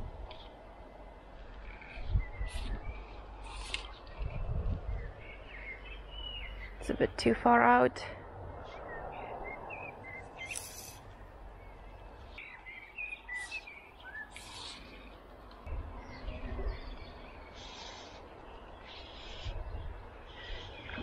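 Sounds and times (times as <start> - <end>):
outdoor background noise: 0.0 - 21.0
small birds chirping: 0.3 - 7.8, 8.6 - 21.0
hissing swishes: 10.4 - 11.2, 14.3 - 15.1
low rumble: 15.0 - 17.4.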